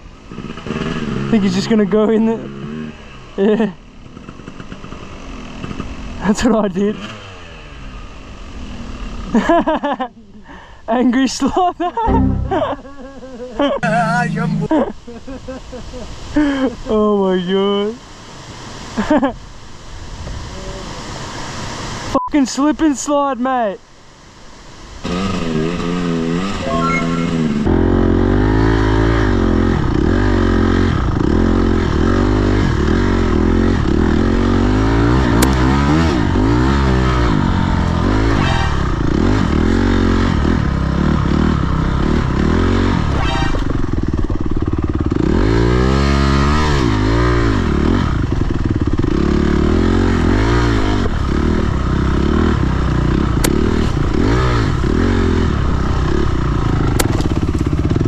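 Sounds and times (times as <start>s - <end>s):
dirt bike engine revving: 0.3s - 3.3s, 25.0s - 58.0s.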